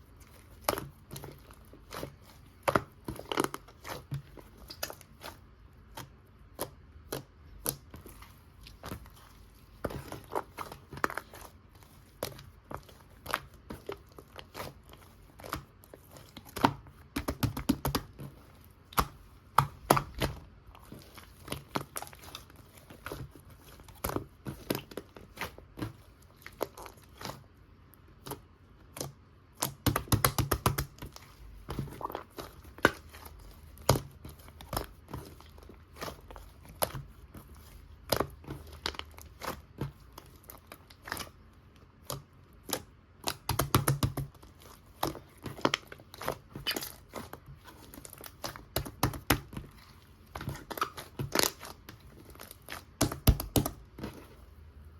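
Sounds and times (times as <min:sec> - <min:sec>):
hands squishing slime: 0:00.0 - 0:54.9
slime crackling: 0:28.2 - 0:54.6.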